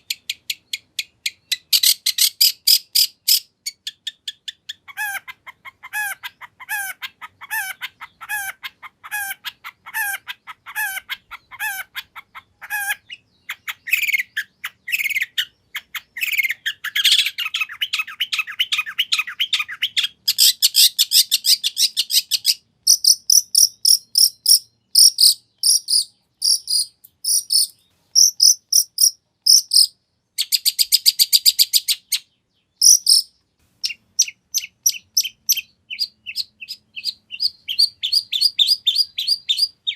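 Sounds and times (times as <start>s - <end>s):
shrike singing: 22.3s - 32.1s, 32.8s - 39.9s.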